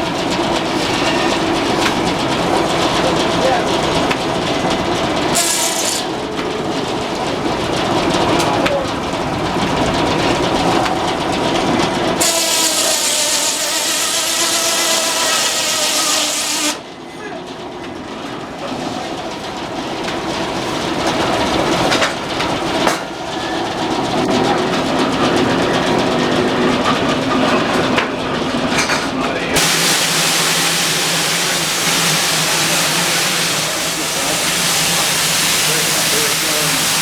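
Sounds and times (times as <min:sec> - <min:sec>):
sawmill machinery running: 0:00.0 - 0:37.0
loud high whine with hiss: 0:29.6 - 0:37.0.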